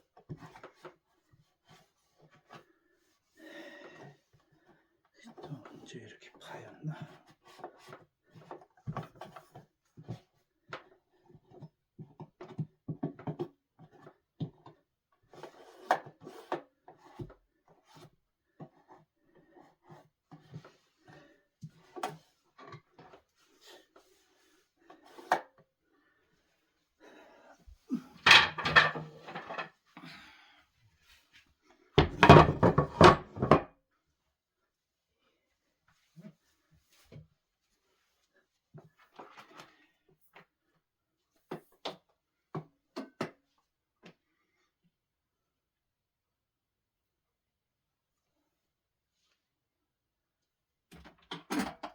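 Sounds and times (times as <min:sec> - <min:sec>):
clattering on wood: 0:28.2 - 0:29.7, 0:32.0 - 0:33.7.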